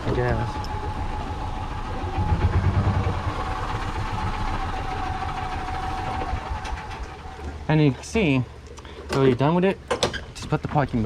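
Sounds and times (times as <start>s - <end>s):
utility vehicle engine running: 0.0s - 8.6s
thin steady whine: 0.0s - 9.0s.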